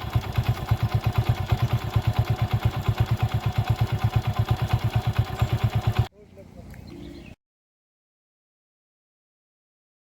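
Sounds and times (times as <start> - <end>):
engine idling: 0.0 - 7.3.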